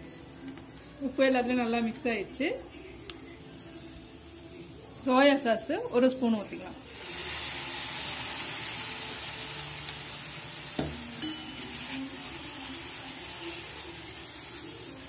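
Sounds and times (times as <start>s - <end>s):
vegetables sizzling in a pan: 3.3s - 15.0s
light metallic ring: 10.9s - 11.9s
spatula clinking against pan: 11.0s - 12.0s.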